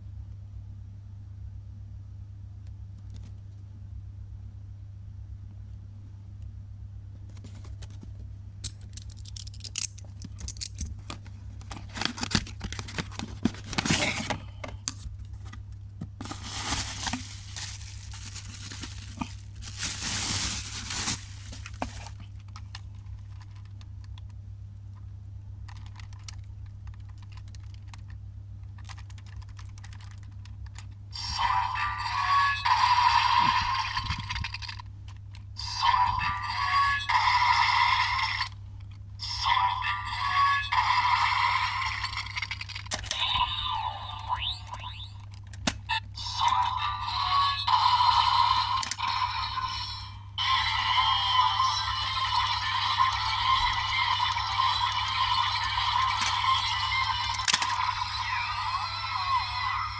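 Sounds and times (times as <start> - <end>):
steady low hum: 0.0 - 29.2
plastic packaging tearing and crinkling: 8.9 - 15.0, 16.2 - 22.4, 57.2 - 58.0.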